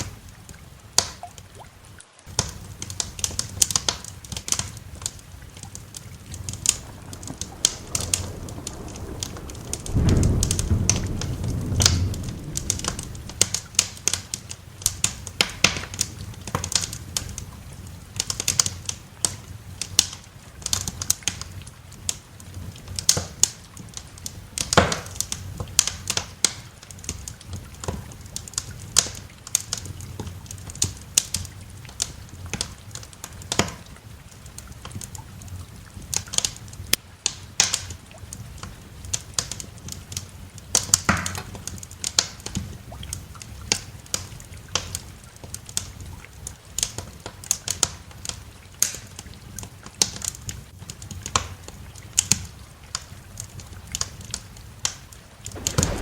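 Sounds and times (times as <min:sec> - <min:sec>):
wood fire crackling: 0:00.0 - 0:56.0
rain hissing: 0:01.8 - 0:28.9, 0:55.3 - 0:56.0
thunder rumbling: 0:05.2 - 0:16.4, 0:55.5 - 0:56.0.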